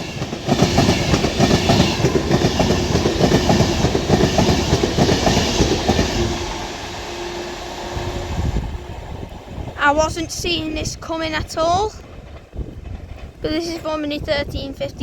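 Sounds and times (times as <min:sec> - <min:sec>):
train wheels clattering over rails: 0:00.0 - 0:10.2, 0:10.8 - 0:14.6
steady train hum: 0:00.0 - 0:15.0.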